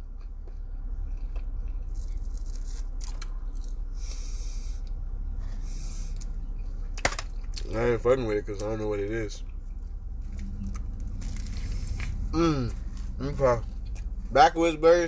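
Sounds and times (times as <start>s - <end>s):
person chewing: 0.0s - 5.0s, 9.4s - 14.3s
steady low rumble: 0.0s - 15.0s.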